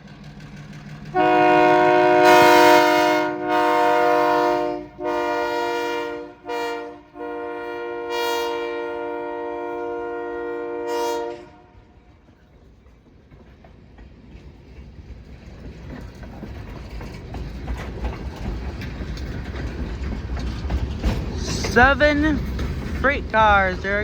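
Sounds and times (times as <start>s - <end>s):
train wheels clicking over rail joints: 0.0s - 6.2s, 11.2s - 24.0s
freight train rumble: 0.0s - 24.0s
locomotive horn: 1.1s - 12.1s.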